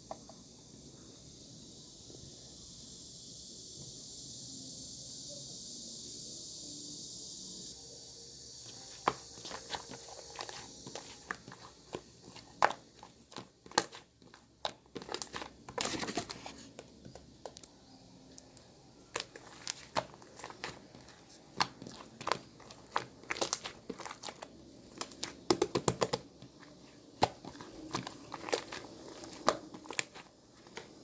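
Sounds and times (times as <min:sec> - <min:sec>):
crinkling and crackling: 0:08.7 - 0:31.0.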